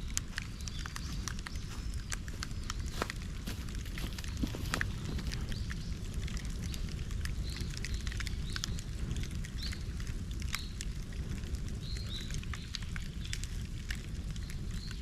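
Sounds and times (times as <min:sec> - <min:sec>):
bonfire crackling and popping: 0:00.0 - 0:15.0
low rumble of flames: 0:00.0 - 0:15.0
small bird chirping: 0:00.2 - 0:06.0.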